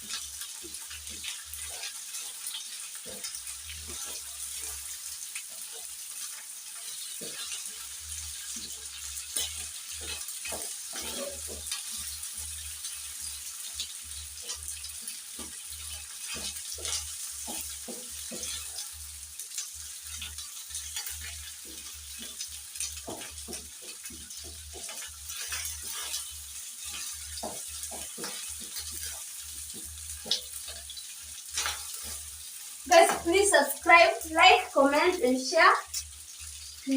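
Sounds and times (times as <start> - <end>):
food sizzling in oil: 0.0 - 36.9
spoon scraping and knocking pot: 9.4 - 12.1, 23.0 - 31.0.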